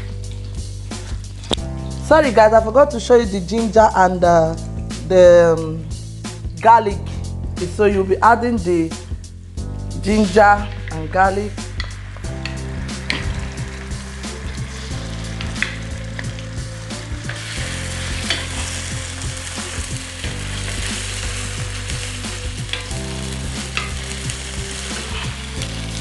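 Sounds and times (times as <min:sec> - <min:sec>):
onion sizzling in hot oil: 0:09.6 - 0:26.0
wooden spoon scraping a pan: 0:17.2 - 0:22.9, 0:23.6 - 0:26.0.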